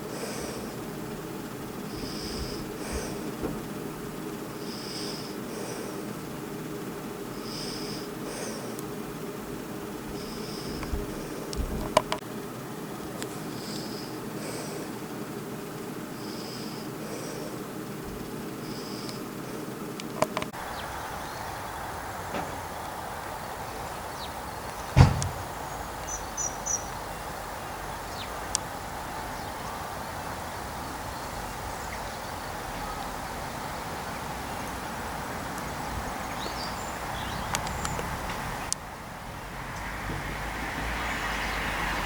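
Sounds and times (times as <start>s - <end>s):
outdoor background noise: 0.0s - 42.0s
sharp thump: 25.0s - 25.5s
light clicks: 37.5s - 38.1s.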